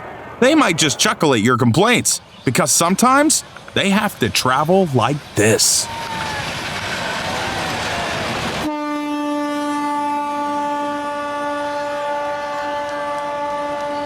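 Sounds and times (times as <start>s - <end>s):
train rushing: 0.4s - 8.7s
train horn long note: 8.7s - 14.0s.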